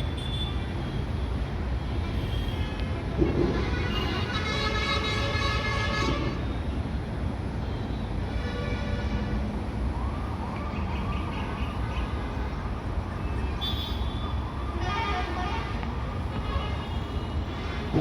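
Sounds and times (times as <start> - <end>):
low rumble of vehicles: 0.0 - 18.0
warbling siren: 9.9 - 13.2.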